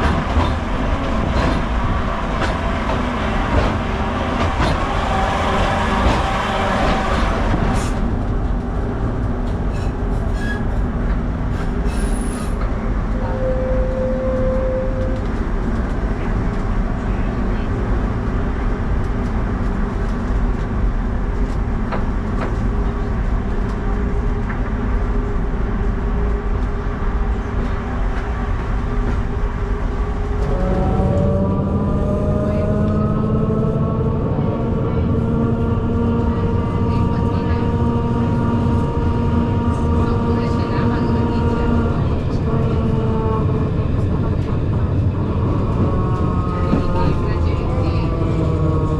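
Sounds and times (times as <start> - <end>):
tram rumbling on rails: 0.0 - 48.9.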